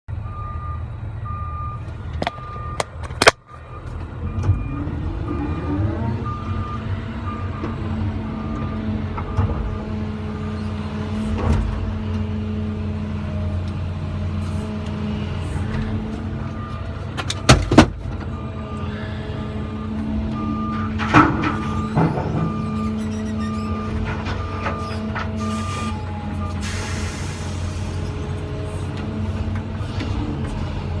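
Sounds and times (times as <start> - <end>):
reversing alarm beeping: 0.2 - 9.7, 18.3 - 27.6
excavator diesel engine revving: 0.2 - 31.0.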